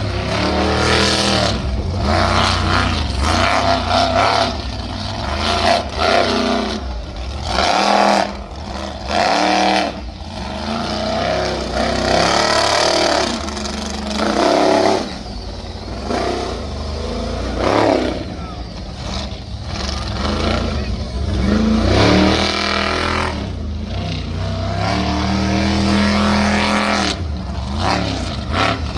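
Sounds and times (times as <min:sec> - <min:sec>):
monster truck engine revving: 0:00.0 - 0:28.9.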